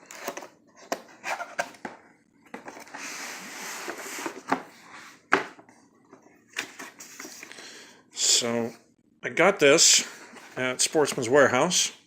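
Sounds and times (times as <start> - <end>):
cardboard rustling and scraping: 0.0 - 7.5.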